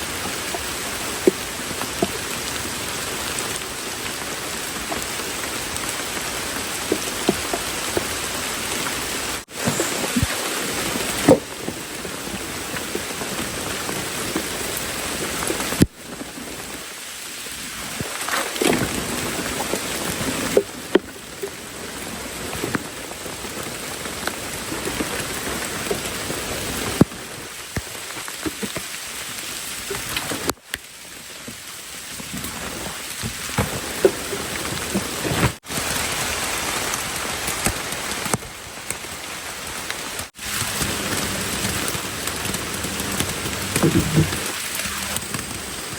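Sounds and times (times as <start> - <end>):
heavy rain falling: 0.0 - 45.9
raindrops ticking close by: 0.0 - 45.9.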